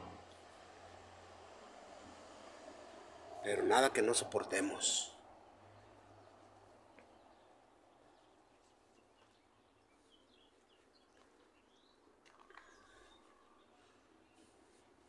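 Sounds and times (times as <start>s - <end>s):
faint bird chirps: 7.0s - 14.6s.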